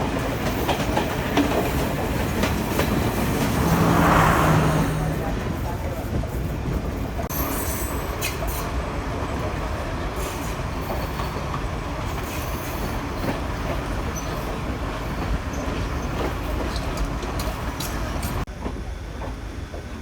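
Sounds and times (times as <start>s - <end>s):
wheels clicking on rails: 0.0s - 4.1s, 10.2s - 19.9s
train rumbling on track: 0.0s - 20.0s.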